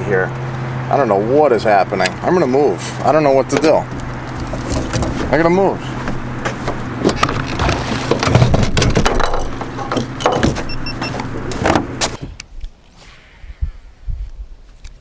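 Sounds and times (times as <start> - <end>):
knocks and bumps of gear handled: 3.0 - 12.4
high electronic beeps: 10.6 - 11.2.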